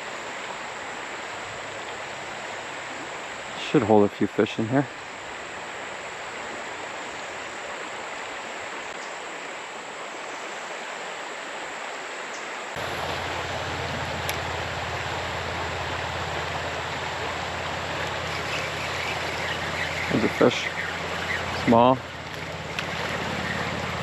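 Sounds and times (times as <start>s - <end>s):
creek current rushing: 0.0s - 24.0s
low rumble: 12.8s - 24.0s.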